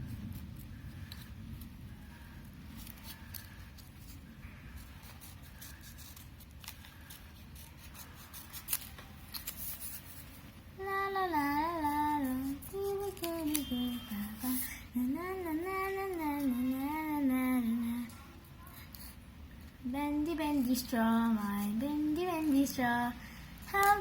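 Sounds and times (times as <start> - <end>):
scissors cutting paper: 2.8 - 10.3, 11.4 - 14.7.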